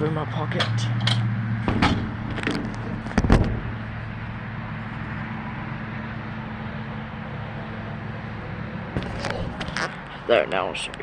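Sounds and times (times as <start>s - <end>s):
hvac units humming: 1.5s - 11.0s
knock and rustle: 1.7s - 3.8s, 9.0s - 9.9s.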